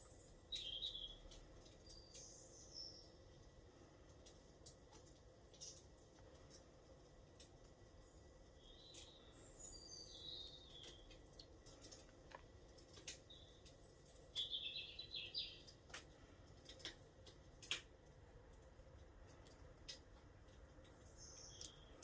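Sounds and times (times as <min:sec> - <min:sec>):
small birds twittering: 0:00.0 - 0:03.3, 0:08.0 - 0:12.1, 0:12.9 - 0:15.8, 0:20.9 - 0:22.0
faint clicks and crackles: 0:00.5 - 0:09.3, 0:10.1 - 0:14.6, 0:15.6 - 0:22.0.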